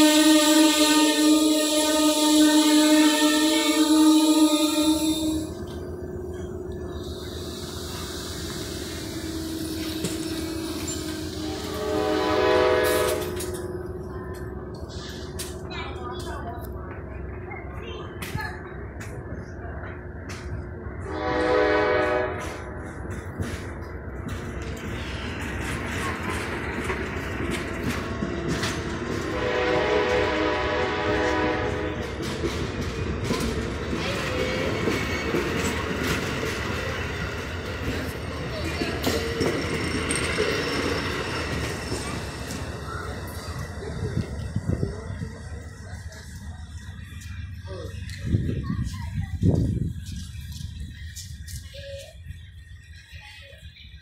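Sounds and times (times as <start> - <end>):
train horn: 0.0 - 5.6, 9.2 - 13.6, 21.0 - 22.7, 29.1 - 32.2
railcar wheels rumbling on rails: 0.0 - 54.0
train humming: 0.0 - 54.0
clacks over rail joints: 22.4 - 29.4, 32.0 - 44.8.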